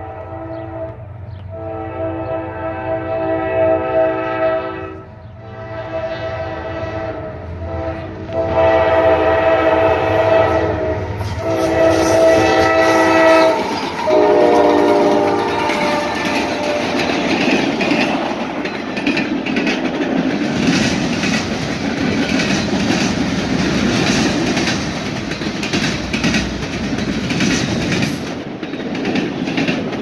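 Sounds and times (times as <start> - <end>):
locomotive air horn blasts: 0.0 - 18.0
train wheels rolling on rails: 5.0 - 30.0.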